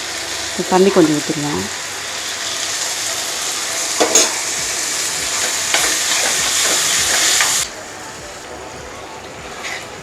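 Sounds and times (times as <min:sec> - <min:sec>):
gravy sizzling in a hot pan: 0:00.0 - 0:10.0
ladle clanking against pan: 0:04.0 - 0:04.4, 0:05.4 - 0:07.6
ladle scraping pan: 0:05.3 - 0:07.6, 0:09.5 - 0:10.0.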